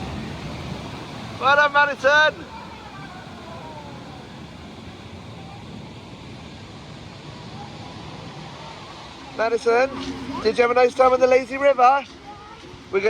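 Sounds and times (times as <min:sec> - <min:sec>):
distant voices calling out: 0:00.0 - 0:06.7
water rushing and splashing: 0:00.0 - 0:13.0.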